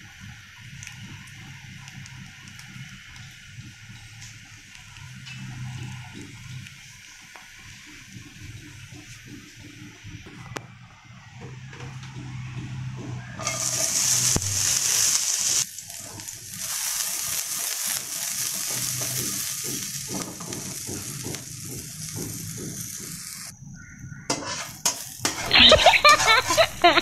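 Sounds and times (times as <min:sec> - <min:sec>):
garlic sizzling in a hot wok: 0:00.0 - 0:27.0
spatula scraping a wok: 0:05.0 - 0:06.7, 0:12.3 - 0:23.5, 0:24.3 - 0:27.0.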